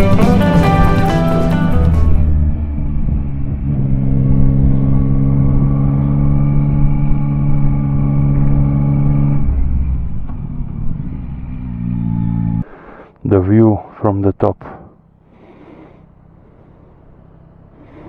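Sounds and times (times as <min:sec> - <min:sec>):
motorcycle engine running: 0:00.0 - 0:12.6, 0:16.0 - 0:18.0.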